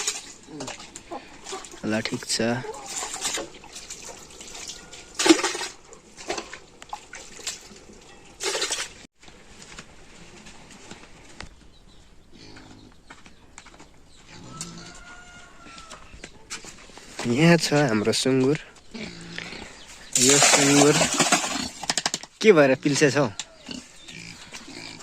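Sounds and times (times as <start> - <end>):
pigs grunting and squealing: 0.0 - 6.6, 12.3 - 12.9, 14.2 - 15.3, 18.8 - 21.9, 23.4 - 25.0.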